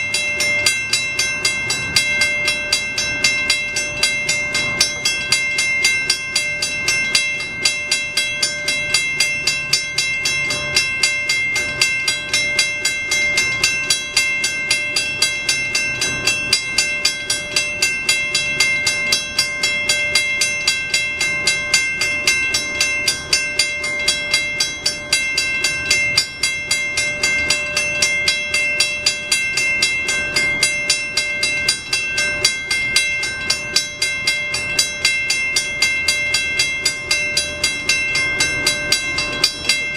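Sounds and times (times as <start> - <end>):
railroad crossing bell ringing: 0.0 - 39.9.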